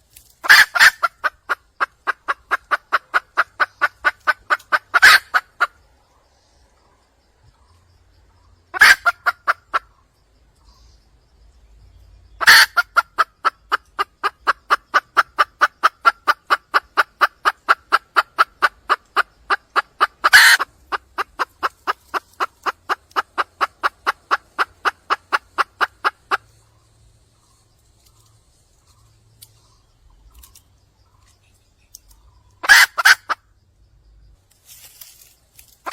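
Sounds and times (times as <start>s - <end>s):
harsh hen call bursts: 0.4s - 5.7s, 8.7s - 9.9s, 12.4s - 26.4s, 32.6s - 33.4s
hen clucking: 0.4s - 6.0s, 8.3s - 10.7s, 12.3s - 33.5s.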